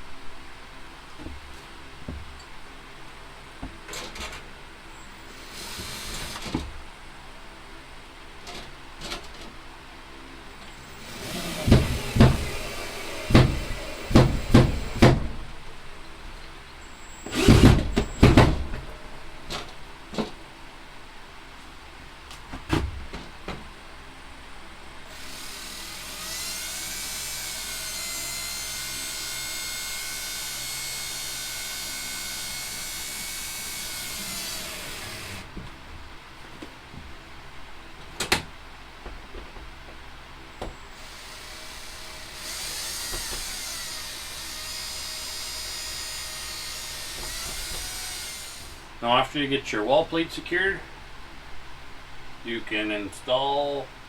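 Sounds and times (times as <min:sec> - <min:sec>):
cordless drill running: 0:05.0 - 0:06.5, 0:10.6 - 0:15.4, 0:16.9 - 0:18.9, 0:25.1 - 0:35.5, 0:40.8 - 0:49.0
loud knocks and clunks: 0:11.0 - 0:15.5, 0:17.3 - 0:20.4.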